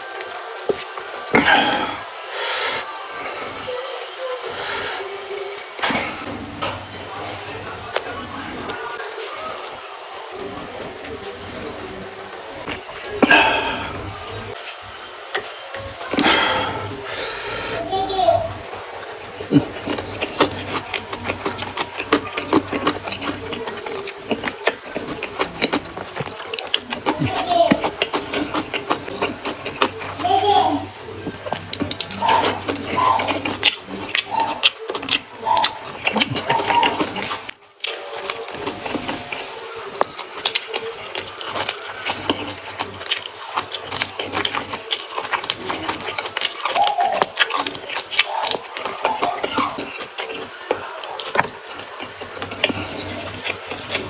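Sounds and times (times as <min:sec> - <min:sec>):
chewing crunchy vegetables: 0:00.0 - 0:54.0
wet mouth clicks: 0:31.2 - 0:37.5.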